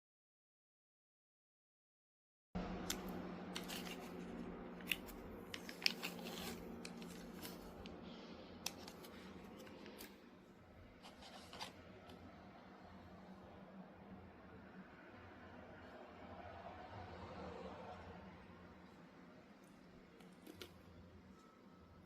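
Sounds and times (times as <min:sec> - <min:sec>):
low steady hum: 0:02.6 - 0:22.0
food packaging rustling and crackling: 0:03.5 - 0:11.9.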